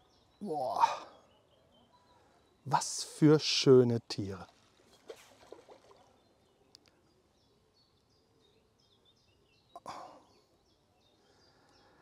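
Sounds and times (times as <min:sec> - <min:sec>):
faint high bird chirps: 0:00.0 - 0:02.8.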